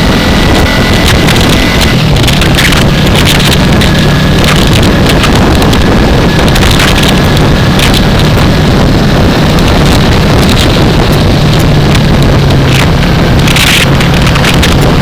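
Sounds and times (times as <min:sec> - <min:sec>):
motorcycle engine cruising: 0:00.0 - 0:15.0
wind buffeting microphone: 0:00.0 - 0:15.0.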